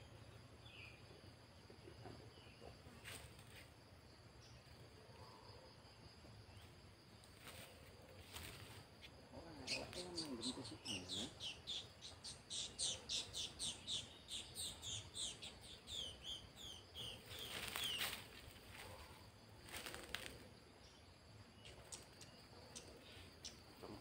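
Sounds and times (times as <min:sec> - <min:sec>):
small bird chirping: 0:08.3 - 0:24.0
faint rustles and clicks: 0:17.3 - 0:20.5.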